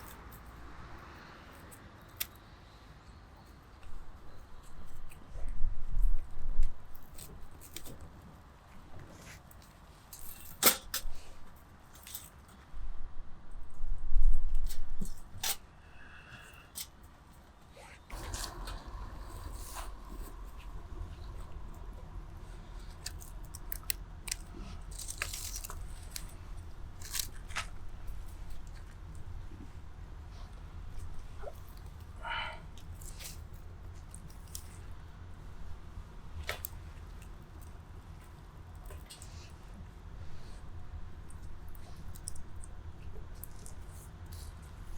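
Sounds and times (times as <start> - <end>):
fire hissing flare: 18.1 - 27.0
wood fire crackling: 18.1 - 28.8
low rumble: 18.1 - 29.5.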